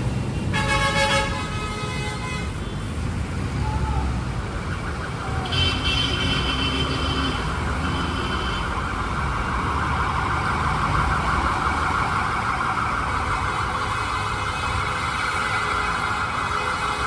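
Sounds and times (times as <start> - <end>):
vehicle engines running: 0.0 - 1.6, 2.5 - 17.0
high-pitched distant siren: 3.7 - 17.0.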